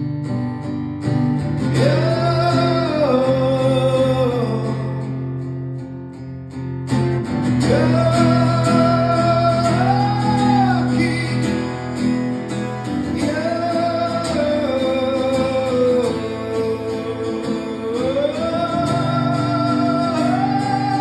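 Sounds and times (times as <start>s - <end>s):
guitar chords: 0.0s - 21.0s
person singing: 1.7s - 5.0s, 7.6s - 12.1s, 13.0s - 21.0s.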